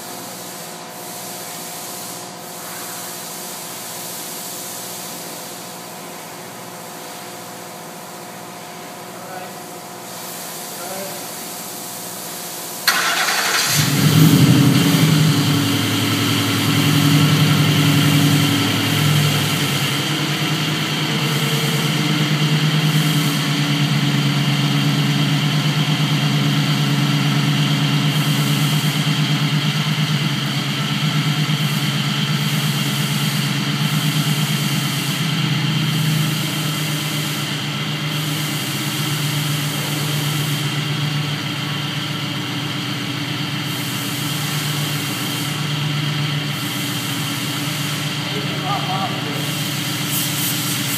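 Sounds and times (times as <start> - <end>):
car engine starting and idling: 12.8 - 50.9.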